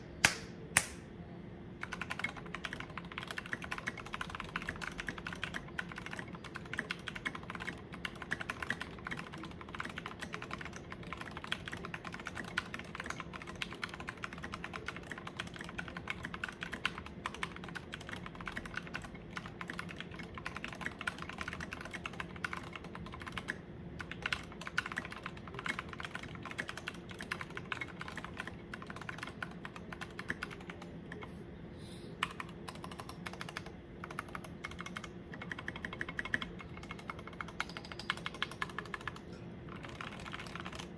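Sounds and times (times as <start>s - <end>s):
sharp click: 0.2s - 1.1s
mechanical keyboard typing: 1.8s - 31.3s, 32.2s - 40.9s.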